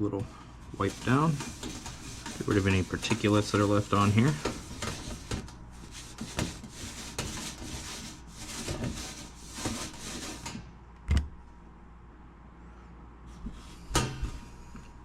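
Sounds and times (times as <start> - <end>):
wipe rubbing on metal panel: 0.7 - 10.6.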